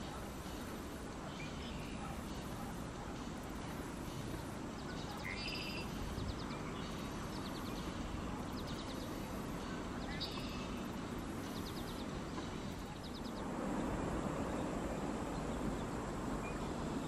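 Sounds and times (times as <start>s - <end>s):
marsh birds trilling: 1.2s - 13.5s
wind rumble on microphone: 11.0s - 17.0s.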